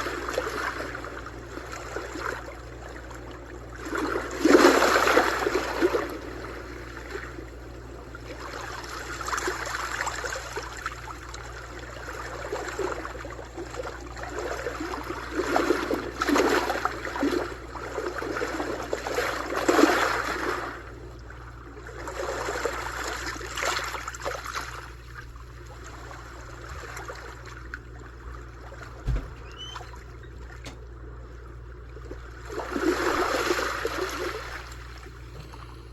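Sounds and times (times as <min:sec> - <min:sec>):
sea waves washing on shore: 0:00.0 - 0:21.0.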